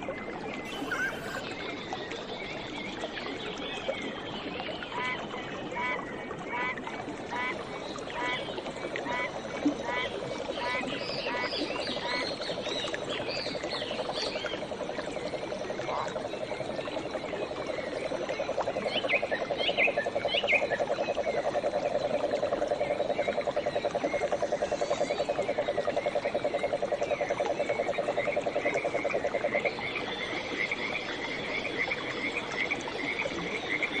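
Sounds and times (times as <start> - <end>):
birds chirping: 0.7 - 1.4
frogs trilling: 0.7 - 1.5, 14.0 - 34.0
low pulsing croaking call: 0.7 - 1.5.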